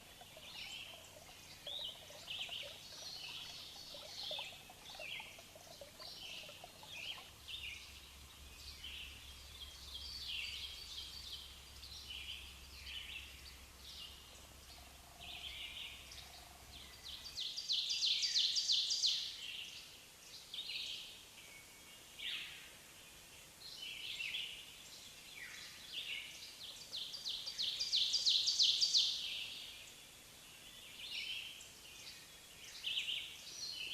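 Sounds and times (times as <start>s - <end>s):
birds singing and calling: 0.0s - 19.2s
faint outdoor background noise: 0.0s - 33.9s.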